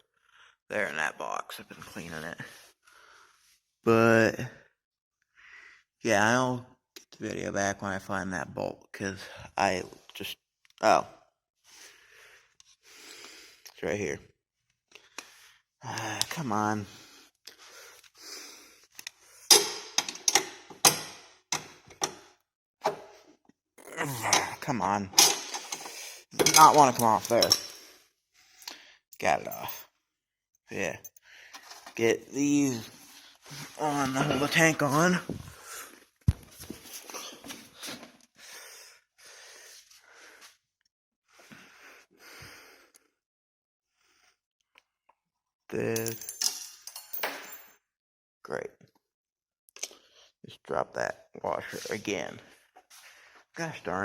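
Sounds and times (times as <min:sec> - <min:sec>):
person breathing hard: 0:11.7 - 0:13.6, 0:16.9 - 0:19.5, 0:37.1 - 0:40.6, 0:41.3 - 0:43.2.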